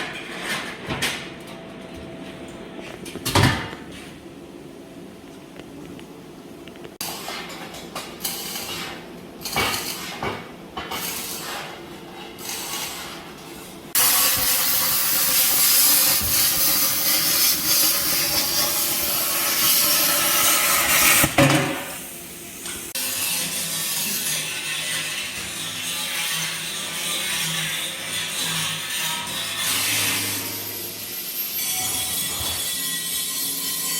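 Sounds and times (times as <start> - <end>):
tool running steadily: 13.9 - 21.6.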